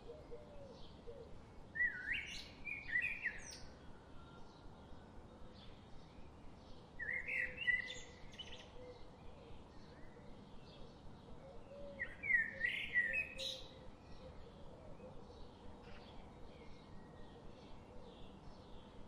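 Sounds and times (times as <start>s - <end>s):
faint bird chirps: 0.0s - 6.4s.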